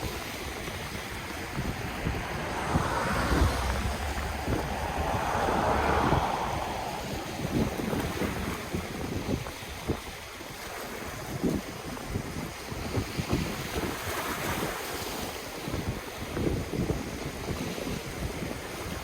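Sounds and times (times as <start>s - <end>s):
ocean waves washing on shore: 0.0s - 19.0s
wind buffeting microphone: 0.0s - 19.0s
low rumbles and thumps: 0.6s - 8.6s.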